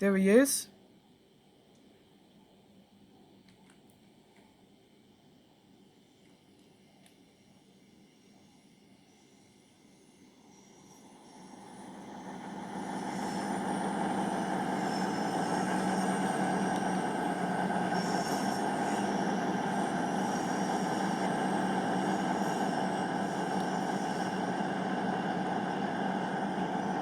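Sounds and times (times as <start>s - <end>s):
diesel train engine and rail noise: 6.8s - 27.0s
faint high-pitched squeal: 6.8s - 27.0s.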